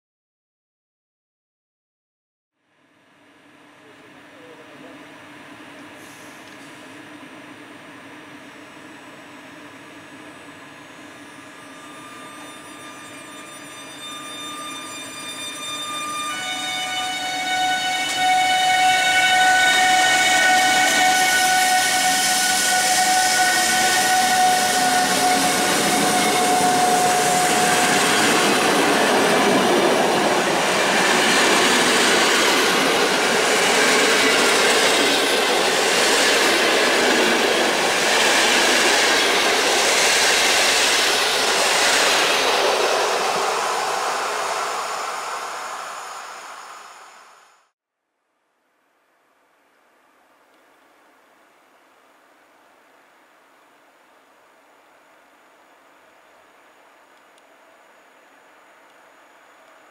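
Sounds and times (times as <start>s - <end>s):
electric locomotive whine: 2.7s - 47.8s.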